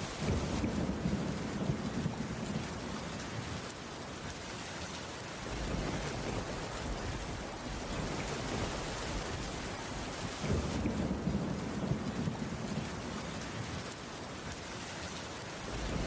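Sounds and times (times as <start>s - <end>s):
low thunder rumbling: 0.0s - 3.7s, 5.4s - 14.0s, 15.6s - 16.0s
rain pattering on wooden roof: 0.0s - 16.0s.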